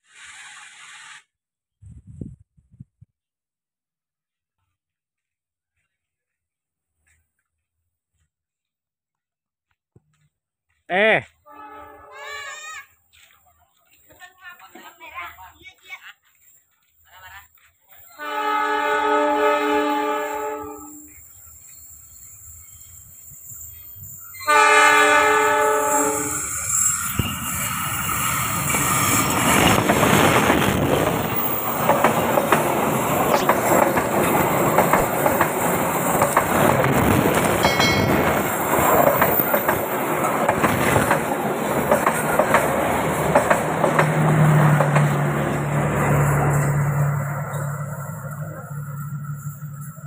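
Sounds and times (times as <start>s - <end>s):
train horn chord: 11.5s - 12.2s, 18.2s - 21.1s, 24.4s - 26.4s
train wheels rumbling on rails: 20.9s - 50.0s
clacking over rail joints: 29.5s - 45.4s.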